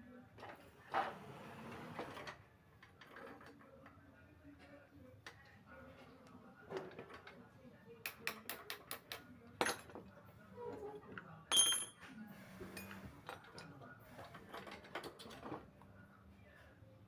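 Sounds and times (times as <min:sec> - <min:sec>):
metallic clatter with ring: 0:11.5 - 0:12.0.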